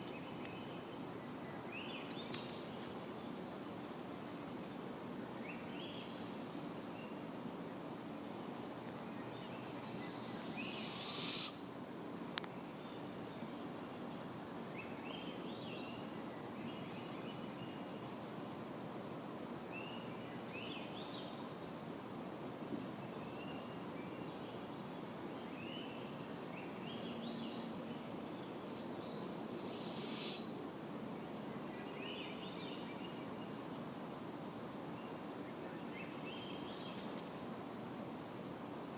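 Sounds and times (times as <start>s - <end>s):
faint bird chirps: 9.1s - 11.8s, 23.0s - 30.7s
owl raspy screech: 10.1s - 11.7s, 28.8s - 30.6s.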